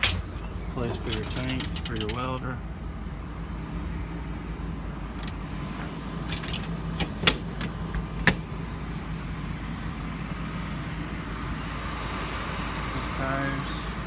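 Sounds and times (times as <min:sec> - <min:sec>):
sharp metallic clicks and knocks: 0:00.0 - 0:02.6, 0:05.1 - 0:08.5
truck engine humming: 0:00.0 - 0:14.0.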